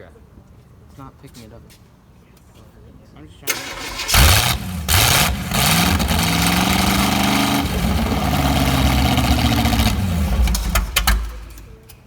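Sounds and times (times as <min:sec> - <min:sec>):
car engine revving: 0:03.5 - 0:11.8
car engine fast idle: 0:03.5 - 0:11.9.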